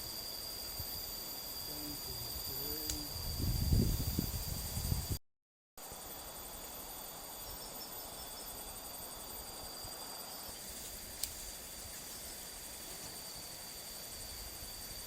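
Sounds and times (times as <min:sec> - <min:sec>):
crickets and insects trilling: 0:00.0 - 0:05.2, 0:05.8 - 0:15.0
sharp click: 0:02.8 - 0:03.1.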